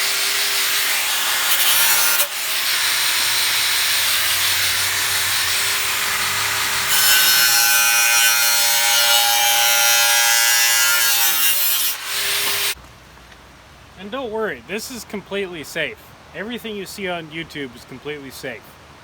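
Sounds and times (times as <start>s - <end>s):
power tool cutting steel: 0.0s - 12.8s.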